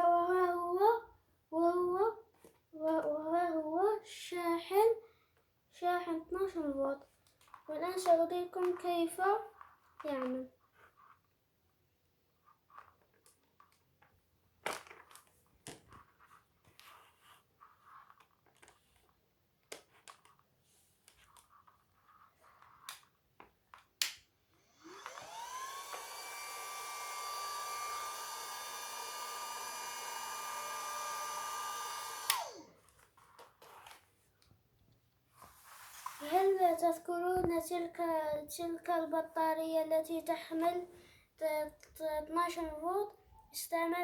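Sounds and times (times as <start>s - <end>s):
small fan motor whining: 24.6s - 33.0s.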